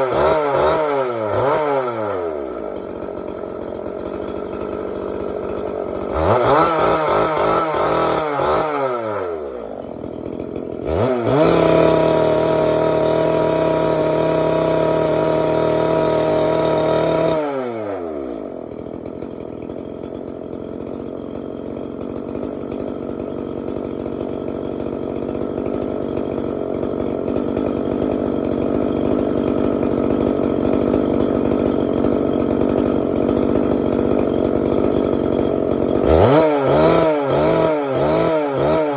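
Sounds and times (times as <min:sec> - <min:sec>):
two-stroke engine cutter revving: 0:00.0 - 0:38.9.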